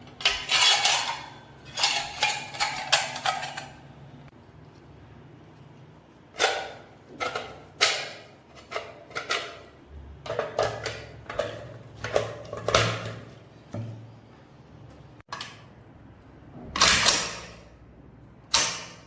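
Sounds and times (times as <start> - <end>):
metal parts clicking and clacking: 0.0 - 3.9, 16.8 - 17.6.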